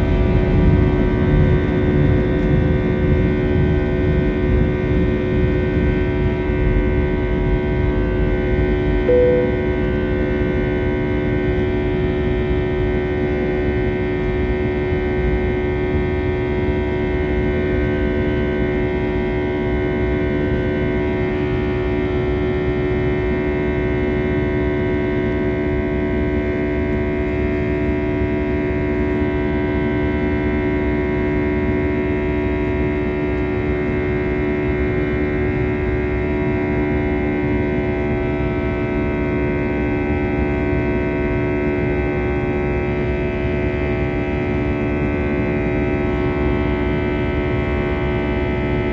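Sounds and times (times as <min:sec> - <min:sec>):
aircraft cabin engine rumble: 0:00.0 - 0:16.0, 0:26.4 - 0:48.9
constant droning tones: 0:00.0 - 0:48.9.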